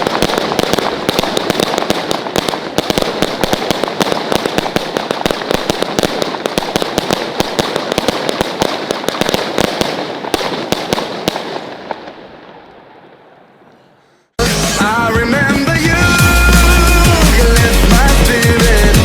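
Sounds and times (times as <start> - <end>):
fireworks bangs and crackling: 0.0 - 13.2, 14.4 - 19.0.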